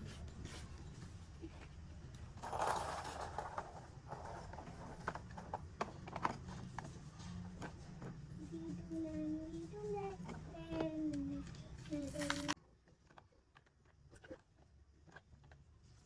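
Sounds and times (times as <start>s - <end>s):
plastic toys clicking and knocking: 1.5s - 9.0s, 10.0s - 15.7s
scraping rattle: 2.2s - 7.6s.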